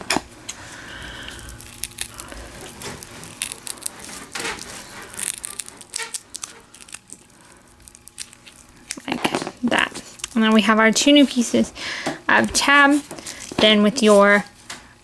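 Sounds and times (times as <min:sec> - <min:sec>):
hook-and-loop tape ripping: 0:01.4 - 0:10.4.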